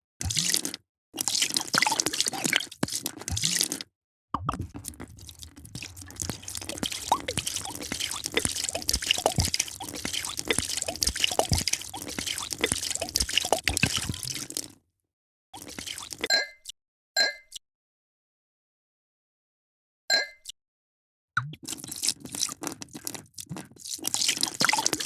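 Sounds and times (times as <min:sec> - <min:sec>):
drink being poured: 0:04.5 - 0:14.8, 0:15.6 - 0:16.3, 0:21.7 - 0:25.0.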